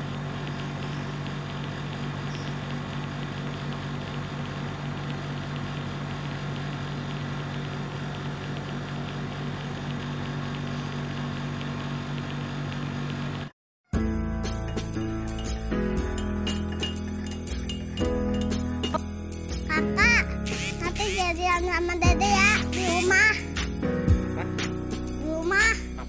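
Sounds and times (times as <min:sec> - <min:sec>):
machine motor humming: 0:00.0 - 0:13.5, 0:19.7 - 0:23.5
faint regular ticking: 0:14.5 - 0:19.0.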